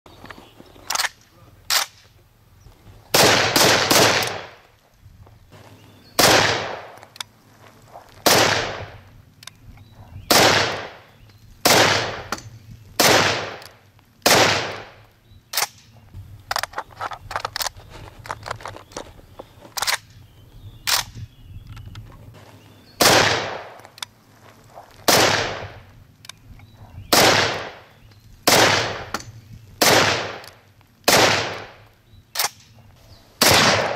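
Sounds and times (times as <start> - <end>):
fainter sharper cracks: 0.9 - 2.1, 15.5 - 17.7, 32.3 - 32.8
rifle shots with echo: 3.1 - 4.6, 6.2 - 7.1, 8.2 - 9.0, 10.3 - 15.8, 23.0 - 23.9, 25.1 - 25.9, 27.1 - 31.8, 33.4 - 33.9.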